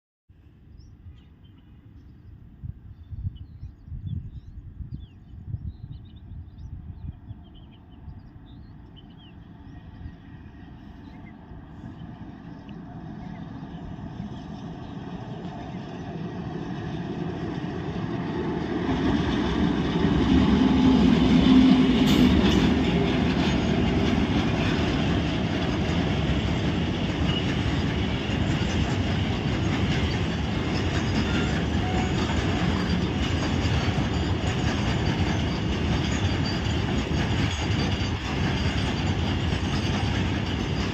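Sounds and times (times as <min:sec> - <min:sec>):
freight train passing: 0:06.2 - 0:40.9
wagons rolling on rails: 0:18.8 - 0:40.9.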